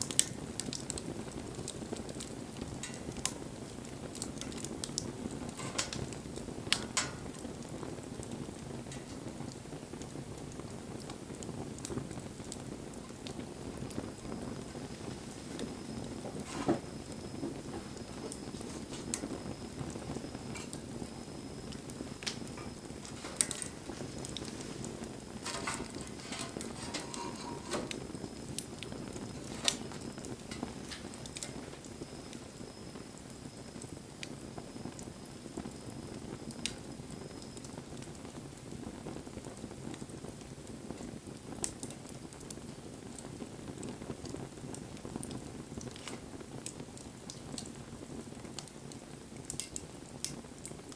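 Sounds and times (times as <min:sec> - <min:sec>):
low rush of flame: 0:00.0 - 0:36.2
fire crackling and popping: 0:00.0 - 0:50.9.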